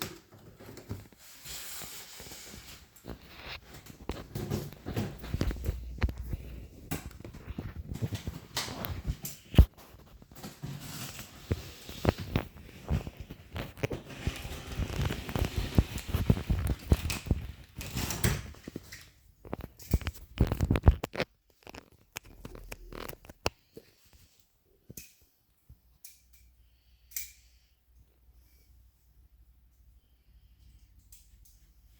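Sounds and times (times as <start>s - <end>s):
packaging rustling and tearing: 7.1s - 23.5s.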